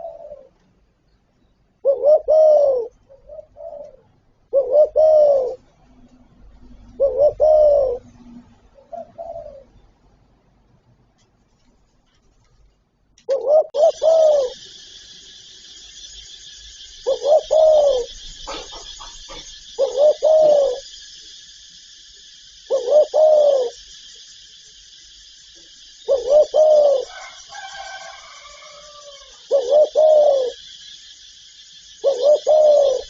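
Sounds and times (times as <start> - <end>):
dove cooing: 0.0 - 0.6, 1.8 - 5.7, 6.8 - 9.8, 13.3 - 14.9, 17.0 - 21.0, 22.7 - 23.8, 26.0 - 30.7, 32.0 - 33.0
steady high hiss: 13.5 - 33.0
thin high chirps: 13.8 - 33.0.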